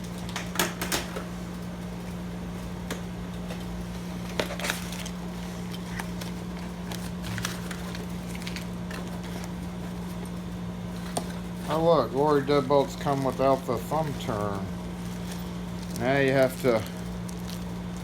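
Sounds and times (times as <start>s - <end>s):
steady low hum: 0.0s - 18.0s
packaging rustling: 4.5s - 10.3s, 10.9s - 18.0s.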